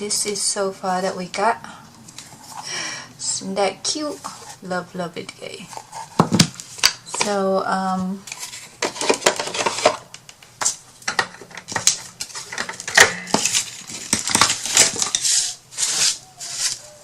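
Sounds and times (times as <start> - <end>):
small hard objects clattering: 8.3 - 10.0, 10.6 - 16.8
rustling: 11.7 - 17.0.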